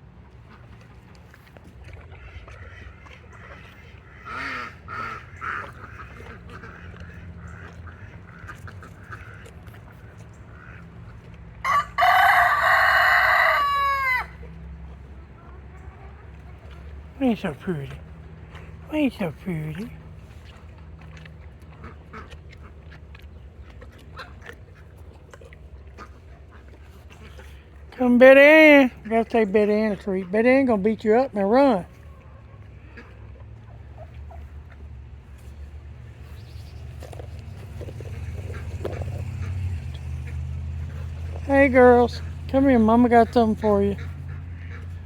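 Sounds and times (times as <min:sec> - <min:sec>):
animals crunching treats: 0:00.0 - 0:45.0
poultry quacking calls: 0:02.1 - 0:14.3, 0:21.7 - 0:27.8, 0:32.6 - 0:34.5, 0:36.0 - 0:45.0.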